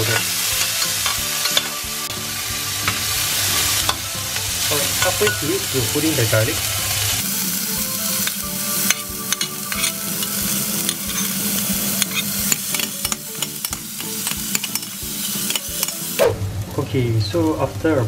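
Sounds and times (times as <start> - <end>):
metal spatula scraping pan: 0.0 - 16.2
onion and garlic sizzling in oil: 0.0 - 18.0.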